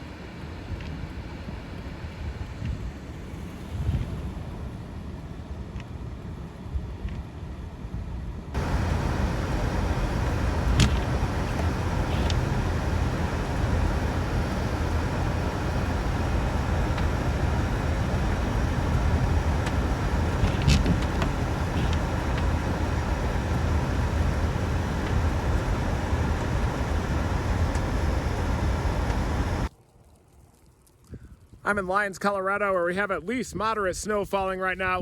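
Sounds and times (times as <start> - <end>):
vehicle road noise: 8.6 - 29.7.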